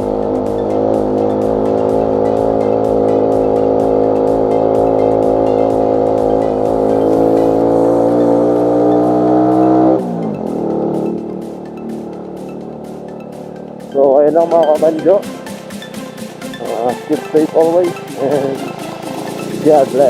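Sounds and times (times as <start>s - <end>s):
background music: 0.0s - 20.0s
motorcycle engine running: 0.0s - 20.0s.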